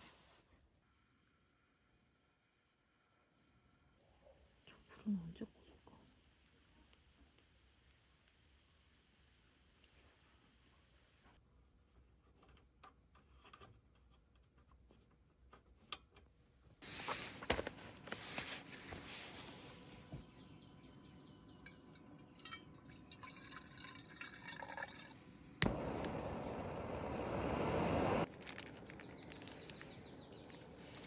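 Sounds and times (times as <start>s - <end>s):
liquid pouring and dripping: 21.6s - 25.8s.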